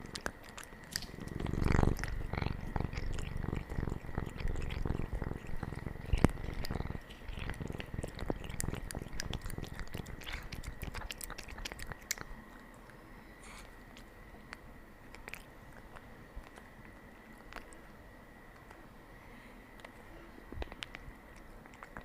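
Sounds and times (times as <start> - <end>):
cat purring: 0.0 - 12.6.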